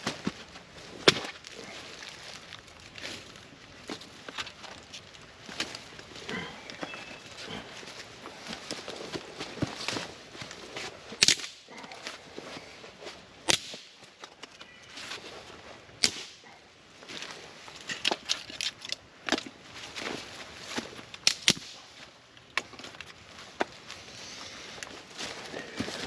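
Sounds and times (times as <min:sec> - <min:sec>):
rustling: 0:00.0 - 0:26.0
firewood sticks snapping: 0:08.5 - 0:12.2, 0:13.4 - 0:14.7, 0:16.0 - 0:16.5, 0:17.2 - 0:19.6, 0:20.7 - 0:23.8.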